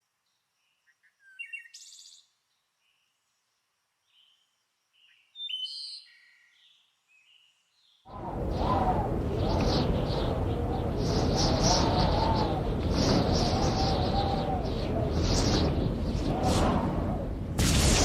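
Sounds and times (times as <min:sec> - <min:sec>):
loud steady rushing noise: 0:08.1 - 0:18.0.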